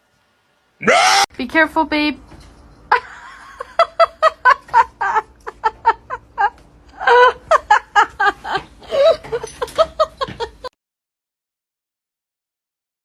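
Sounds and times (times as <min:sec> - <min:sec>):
person laughing hard: 0:03.0 - 0:10.7.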